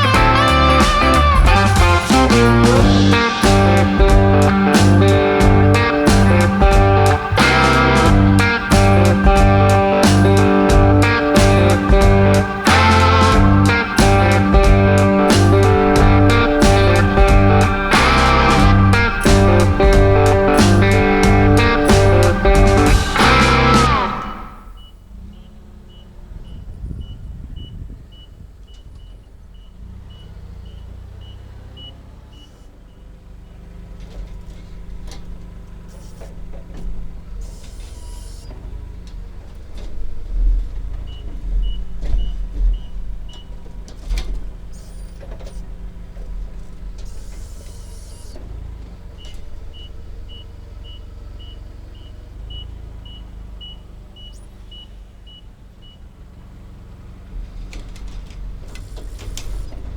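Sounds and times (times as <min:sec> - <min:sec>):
truck diesel engine running: 0:00.0 - 0:59.9
turn signal ticking: 0:00.0 - 0:59.9
air hisses: 0:47.1 - 0:48.4.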